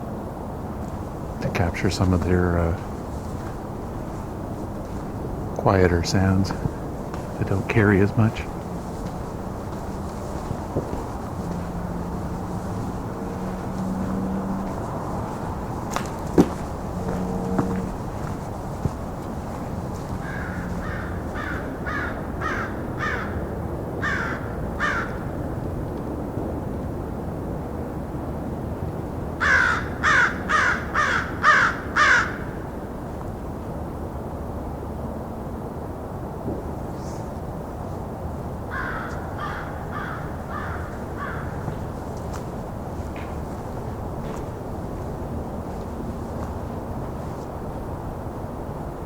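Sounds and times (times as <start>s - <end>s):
steady low rumble: 0.0s - 24.0s
crows cawing: 5.8s - 25.4s, 29.4s - 32.6s, 38.7s - 42.2s
crow cawing: 20.0s - 25.3s, 29.4s - 32.6s, 38.7s - 42.1s.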